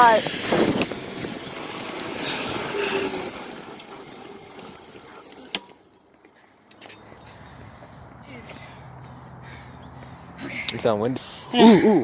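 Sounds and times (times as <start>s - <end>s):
wind noise on microphone: 0.0s - 4.0s
high-pitched squeal: 0.0s - 6.1s.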